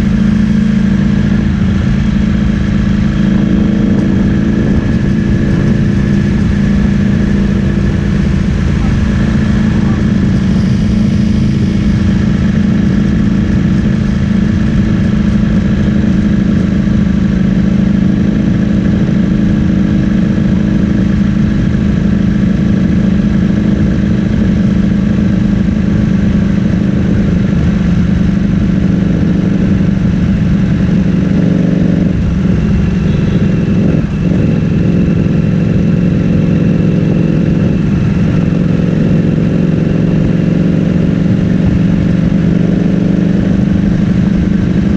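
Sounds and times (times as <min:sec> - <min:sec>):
loud motorcycle engine running: 0:00.0 - 0:44.9.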